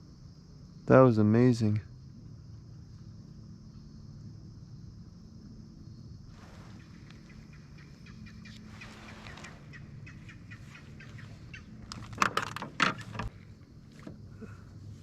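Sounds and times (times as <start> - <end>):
bird chirping: 6.8 - 12.2.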